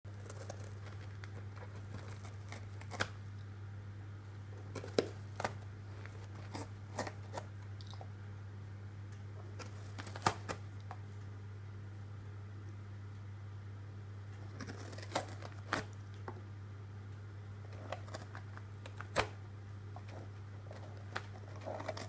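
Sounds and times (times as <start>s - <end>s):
low electrical hum: 0.0s - 22.0s
cat tearing and clawing: 0.1s - 3.3s, 4.5s - 7.7s, 9.4s - 10.6s, 14.4s - 16.4s, 17.6s - 22.0s.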